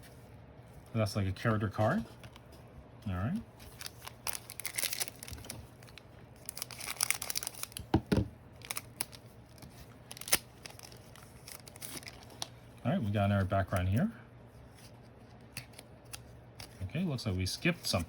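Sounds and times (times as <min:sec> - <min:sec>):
wrapper tearing and crinkling: 0:03.6 - 0:07.9, 0:08.6 - 0:12.5.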